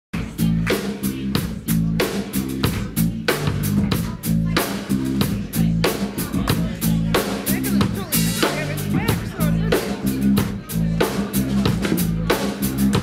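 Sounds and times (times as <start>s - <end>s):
bass guitar: 0.1s - 13.0s
drum kit beat: 0.1s - 13.0s.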